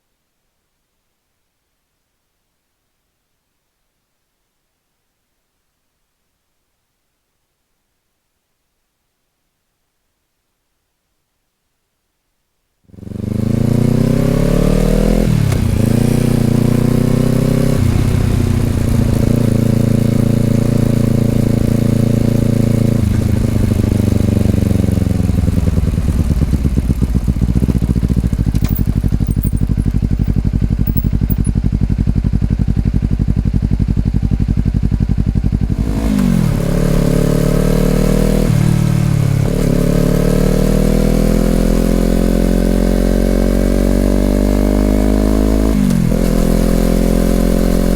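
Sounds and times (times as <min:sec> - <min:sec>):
motorcycle engine accelerating and idling: 0:12.9 - 0:47.9.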